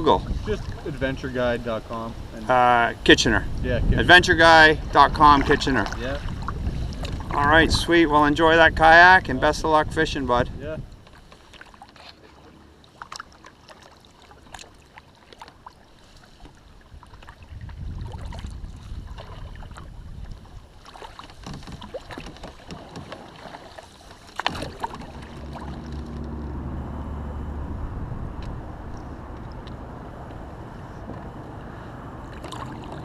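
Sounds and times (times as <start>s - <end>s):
water sloshing and splashing: 0.0s - 3.6s, 4.2s - 8.6s, 10.8s - 27.3s, 28.1s - 33.0s
wind on microphone: 0.0s - 11.0s, 16.9s - 20.8s, 24.5s - 33.0s
steady low hum: 24.6s - 33.0s.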